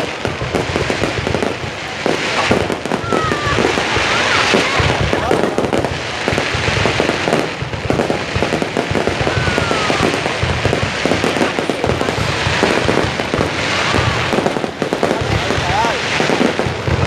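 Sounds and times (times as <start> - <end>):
fireworks bangs and crackles: 0.0 - 17.0
falling firework whistle: 2.3 - 11.5, 12.1 - 14.8.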